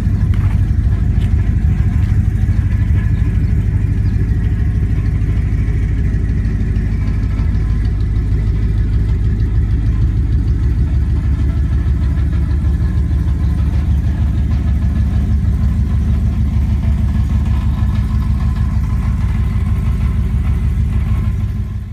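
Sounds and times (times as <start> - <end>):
car engine low drone: 0.0 - 21.9.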